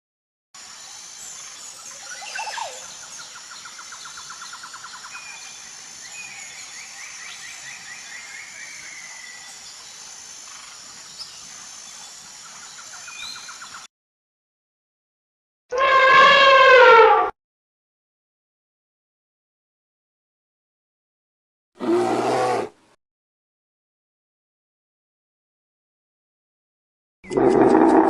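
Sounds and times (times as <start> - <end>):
wild birds chirping: 0.6 - 13.9.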